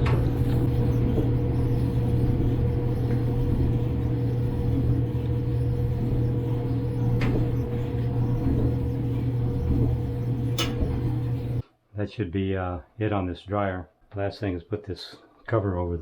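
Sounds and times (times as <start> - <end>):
clothes dryer humming: 0.0 - 11.6.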